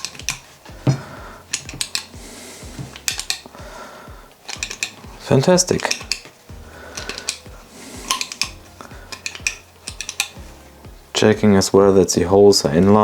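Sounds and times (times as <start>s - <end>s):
small metal parts clinking: 0.0s - 0.7s, 1.4s - 2.2s, 2.9s - 3.6s, 4.4s - 10.4s.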